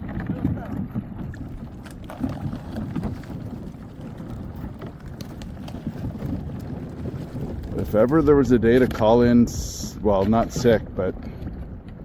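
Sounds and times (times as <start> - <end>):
ice knocking against hull: 0.0 - 9.0
canoe pushing through ice: 0.0 - 12.0
wind rumbling on microphone: 0.0 - 12.0.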